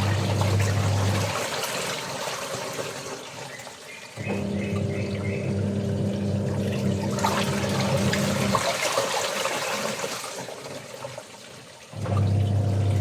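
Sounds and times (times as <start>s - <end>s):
water running and splashing: 0.0s - 13.0s.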